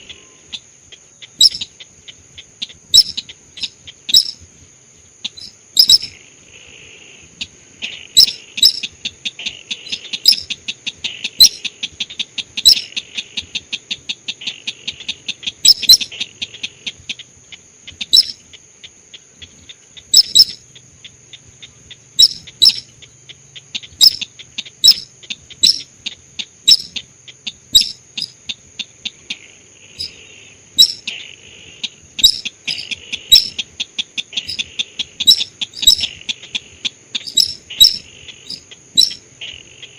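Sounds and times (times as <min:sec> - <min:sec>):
rattling bird trills: 0:01.3 - 0:01.8, 0:02.7 - 0:04.4, 0:05.3 - 0:06.2, 0:08.1 - 0:09.0, 0:09.8 - 0:10.6, 0:11.3 - 0:11.7, 0:12.6 - 0:12.9, 0:15.5 - 0:16.2, 0:18.0 - 0:18.4, 0:20.0 - 0:20.6, 0:22.2 - 0:22.9, 0:23.9 - 0:25.9, 0:26.7 - 0:27.0, 0:27.7 - 0:28.4, 0:30.0 - 0:30.2, 0:30.8 - 0:31.1, 0:31.8 - 0:33.7, 0:34.3 - 0:39.3.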